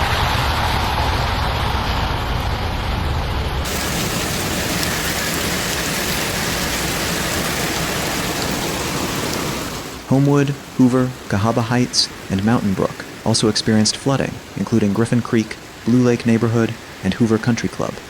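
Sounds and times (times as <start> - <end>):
low rumble: 0.0 - 10.8
heavy rain pouring: 0.0 - 18.0.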